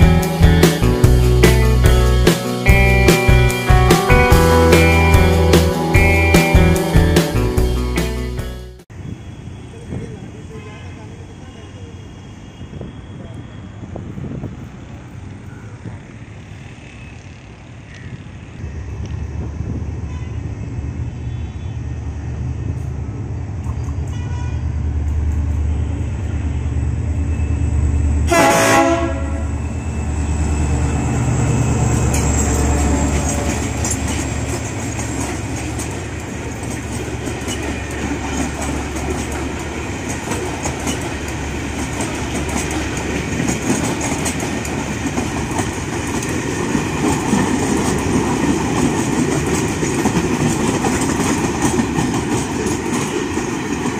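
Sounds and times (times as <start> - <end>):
diesel locomotive engine droning: 0.0 - 53.9
train horn: 10.5 - 11.2, 20.0 - 20.6, 24.0 - 24.8, 28.3 - 30.0
wagons clattering over rail joints: 31.6 - 53.9.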